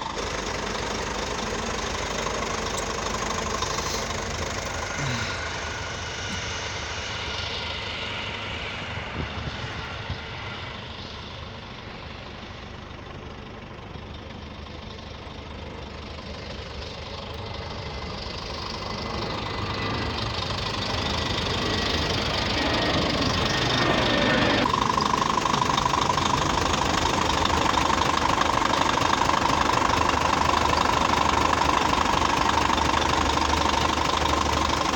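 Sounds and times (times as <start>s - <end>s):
diesel truck engine idling: 0.0s - 7.4s, 11.3s - 34.9s
steady whine: 15.6s - 34.9s.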